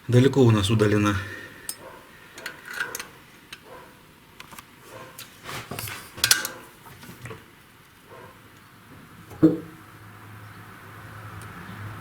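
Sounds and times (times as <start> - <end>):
metal tools clinking on engine: 1.6 - 3.8, 5.8 - 6.7.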